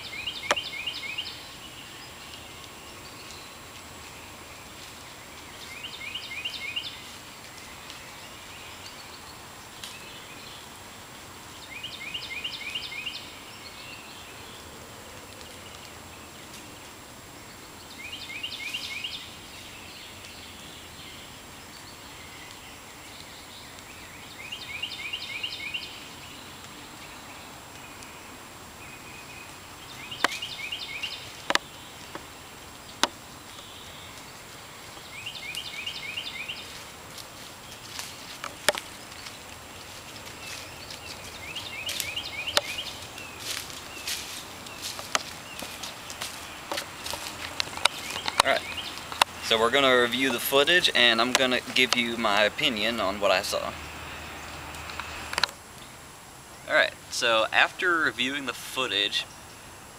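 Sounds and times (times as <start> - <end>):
background hiss: 0.0 - 59.9
songbird singing: 0.0 - 59.9
sharp snaps: 0.4 - 0.7, 41.9 - 49.5.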